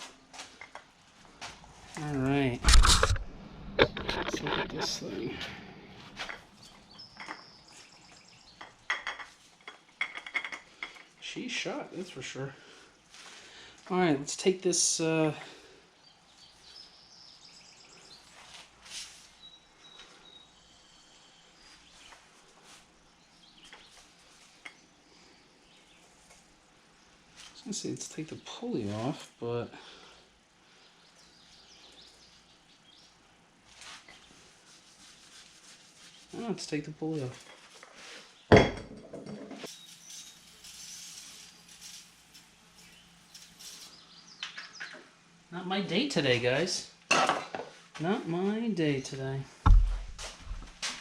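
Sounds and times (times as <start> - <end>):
small birds chirping: 6.3 - 9.1, 15.4 - 38.5, 39.6 - 47.0.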